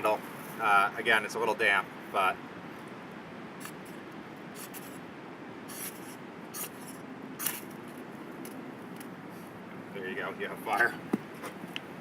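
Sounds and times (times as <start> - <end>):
ferro rod scraped by striker: 5.7 - 7.6.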